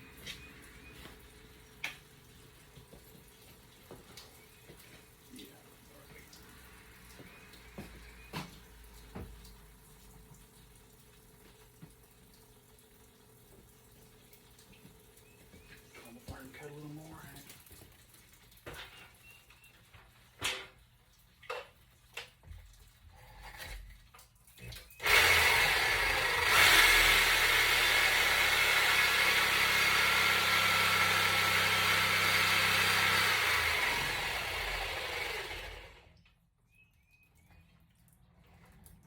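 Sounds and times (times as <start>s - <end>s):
power saw cutting iron pipe: 25.0s - 36.1s.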